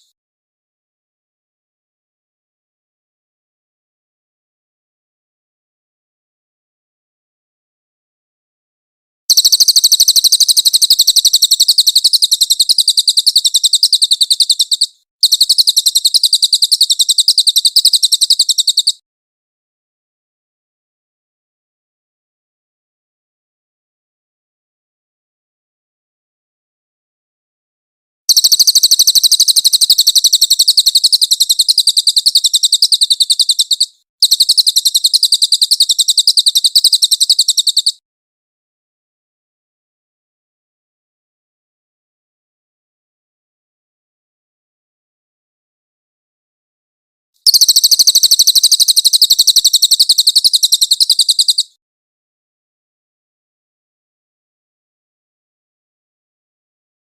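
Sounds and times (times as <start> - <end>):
songbird rapid trill: 9.3 - 19.0, 28.3 - 38.0, 47.4 - 51.8.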